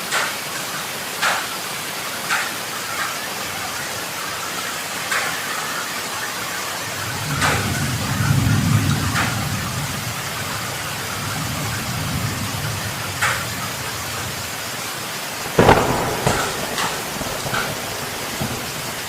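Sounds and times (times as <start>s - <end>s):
heavy rain pouring: 0.0s - 19.0s
sharp thunder cracks: 6.9s - 14.6s, 15.4s - 19.0s
low thunder rumble: 6.9s - 19.0s.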